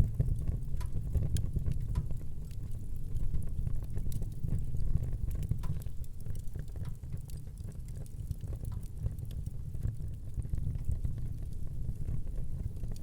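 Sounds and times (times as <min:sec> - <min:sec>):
fire low rumble: 0:00.0 - 0:13.0
wood fire crackling and popping: 0:00.0 - 0:13.0.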